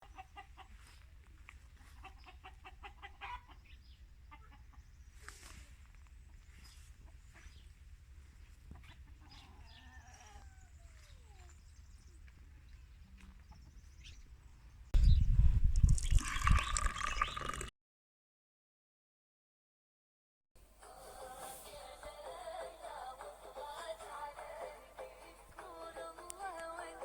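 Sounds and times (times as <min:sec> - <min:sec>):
hen clucking: 0:00.0 - 0:14.4
steady low rumble: 0:03.9 - 0:09.2, 0:10.8 - 0:16.0.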